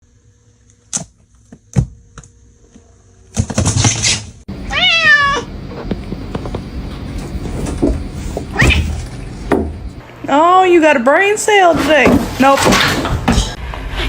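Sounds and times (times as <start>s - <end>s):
cat meowing: 4.6s - 5.5s.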